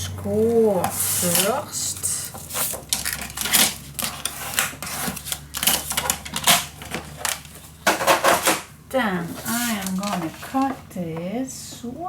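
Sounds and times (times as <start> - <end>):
scoring tool scratching cardstock: 0.9 - 6.0.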